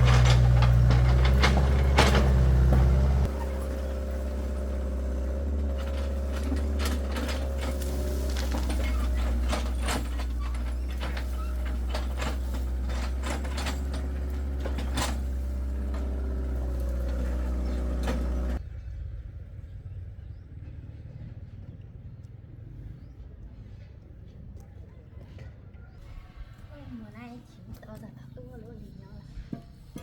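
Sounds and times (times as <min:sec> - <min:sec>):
metallic knocks and clanks: 0:00.0 - 0:18.6
engine running: 0:00.0 - 0:23.8.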